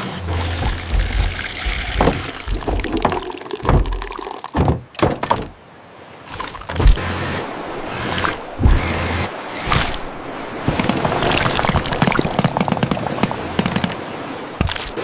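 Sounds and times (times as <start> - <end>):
knocks and thunks: 0.2 - 5.6, 6.6 - 7.0, 8.6 - 9.0
liquid pouring and splashing: 0.3 - 4.6, 9.6 - 13.6.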